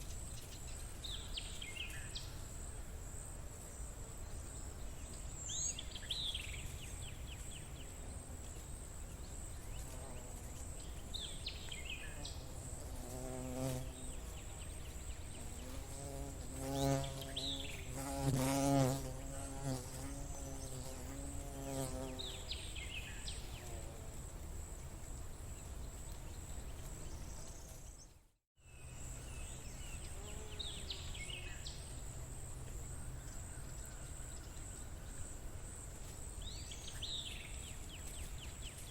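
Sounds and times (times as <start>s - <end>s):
flying insect buzzing: 9.7s - 22.9s, 30.1s - 31.6s.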